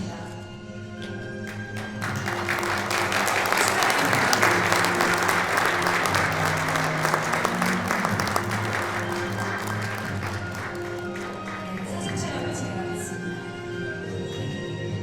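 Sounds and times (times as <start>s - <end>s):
background music: 0.0s - 15.0s
audience applauding: 1.4s - 12.4s.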